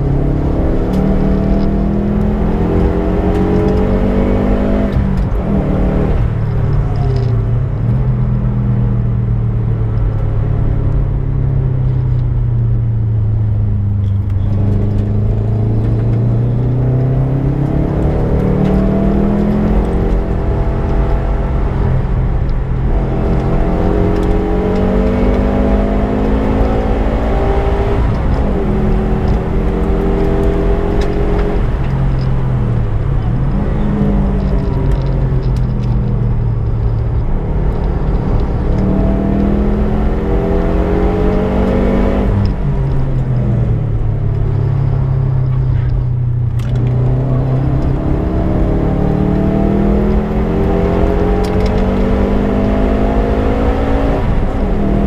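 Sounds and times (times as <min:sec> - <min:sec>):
car engine revving hard: 0:00.0 - 0:06.4, 0:14.4 - 0:22.0, 0:22.8 - 0:31.8, 0:37.2 - 0:43.1, 0:46.6 - 0:55.0.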